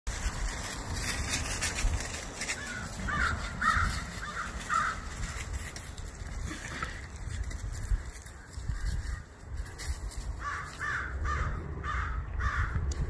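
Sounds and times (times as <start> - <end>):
bird harsh calls: 2.6 - 5.2.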